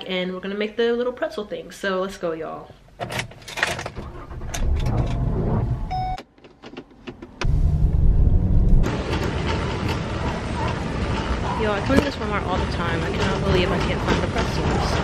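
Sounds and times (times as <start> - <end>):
car engine starting and running: 3.6 - 15.0
busy shop background hum: 8.8 - 15.0.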